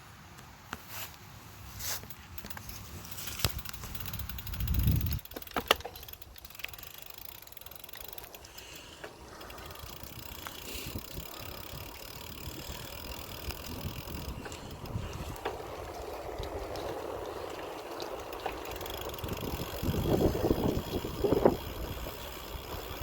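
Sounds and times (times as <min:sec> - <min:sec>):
bicycle tyre and wind noise: 0:01.4 - 0:23.0
wind buffeting microphone: 0:03.5 - 0:05.3, 0:09.5 - 0:23.0.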